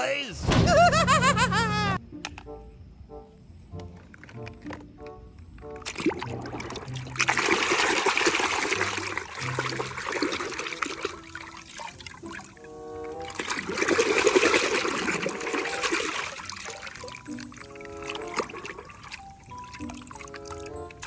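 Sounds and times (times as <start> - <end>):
light background music: 0.0 - 21.0
running water gushing: 5.9 - 21.0.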